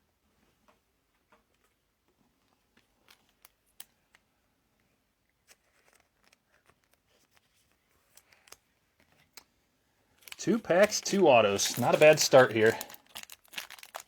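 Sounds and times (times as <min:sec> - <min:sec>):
trading cards clicking and rustling: 0:10.2 - 0:14.0.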